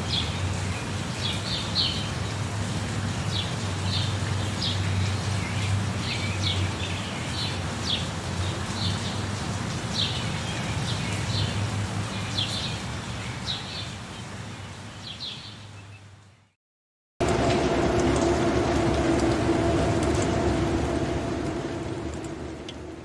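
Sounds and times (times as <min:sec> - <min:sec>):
low hum: 0:17.2 - 0:23.0
steady rushing background: 0:17.2 - 0:23.0.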